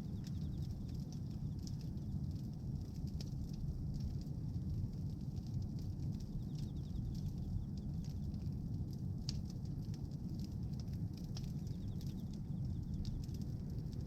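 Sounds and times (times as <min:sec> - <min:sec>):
bonfire crackling: 0:00.0 - 0:14.0
low rumble: 0:09.8 - 0:14.0.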